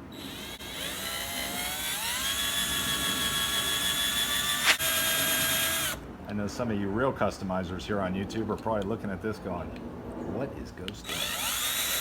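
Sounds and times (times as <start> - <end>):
electric drill whining: 0.1 - 6.0, 11.1 - 12.0.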